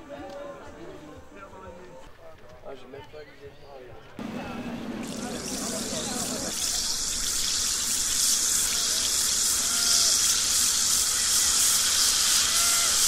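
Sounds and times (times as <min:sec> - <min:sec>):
effervescent tablet fizzing in water: 0:04.2 - 0:13.0.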